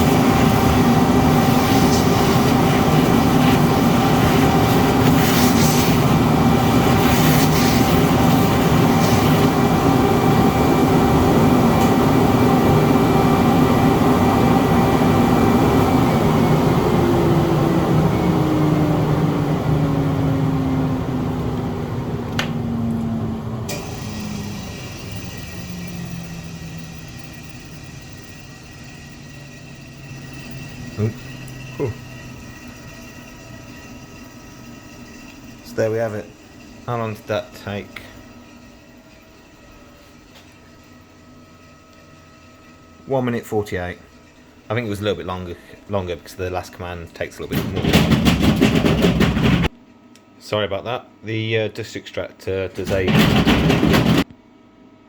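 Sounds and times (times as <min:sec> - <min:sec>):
cnc router milling: 0:00.0 - 0:41.7
dust extractor running: 0:00.0 - 0:49.8, 0:52.8 - 0:54.3.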